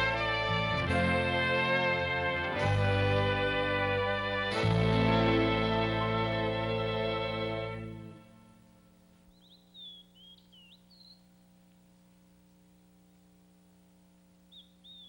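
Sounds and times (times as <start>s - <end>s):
steady low hum: 0.0s - 15.0s
high-pitched bird chirps: 9.3s - 11.3s, 14.5s - 15.0s.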